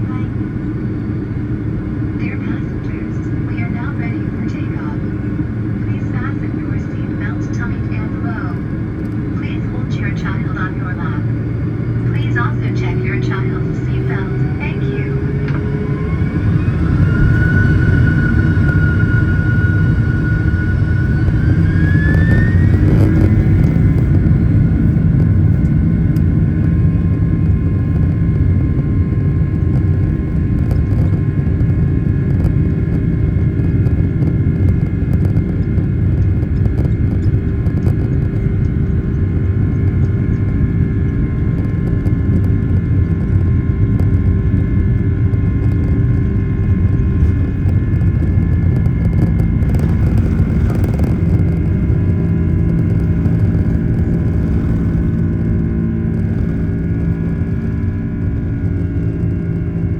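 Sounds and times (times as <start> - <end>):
jet engine whine rising: 0.0 - 59.9
loud continuous jet rumble: 0.0 - 59.9.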